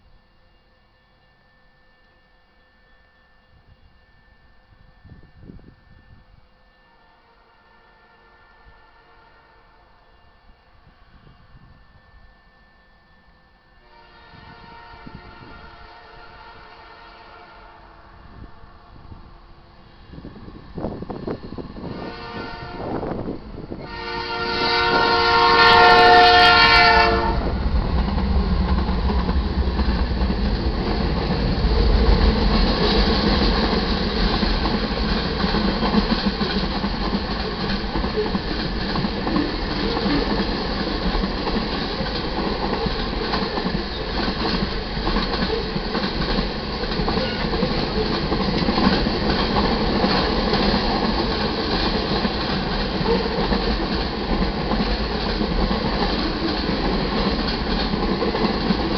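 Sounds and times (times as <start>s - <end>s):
freight train cars rolling past: 0.0s - 58.9s
locomotive horn: 6.7s - 11.7s, 13.8s - 18.4s, 21.8s - 27.6s, 47.2s - 47.6s.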